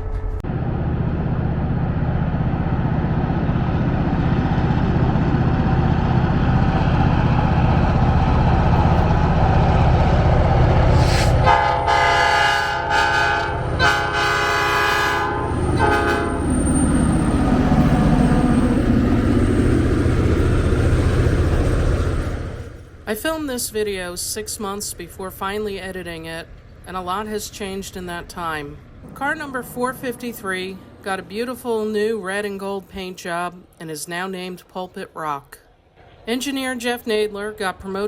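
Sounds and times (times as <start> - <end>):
diesel locomotive rumbling: 0.0 - 33.8
locomotive air horn blasts: 11.0 - 17.0.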